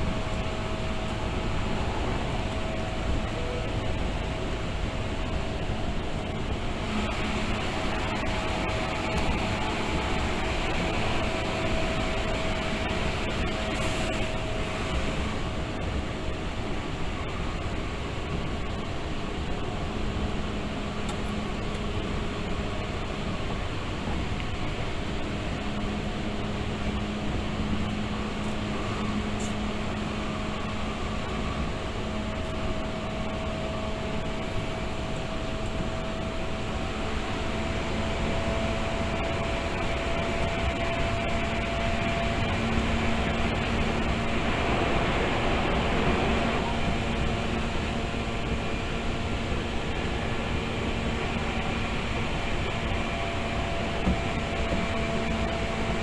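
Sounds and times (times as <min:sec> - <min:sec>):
continuous hum: 0:00.0 - 0:56.0
train wheels rumbling: 0:34.0 - 0:56.0.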